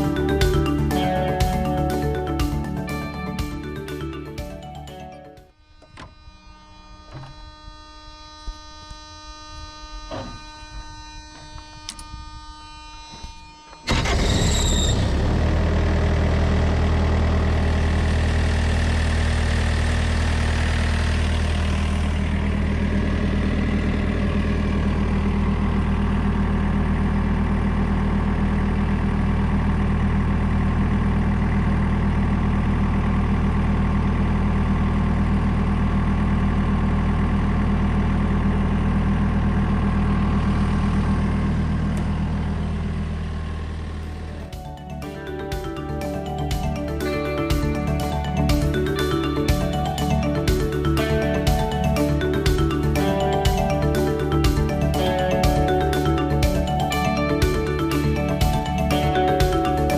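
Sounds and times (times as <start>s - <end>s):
diesel engine starting and idling: 0.0s - 5.2s, 13.8s - 59.9s
background music: 0.0s - 5.6s, 44.2s - 59.9s.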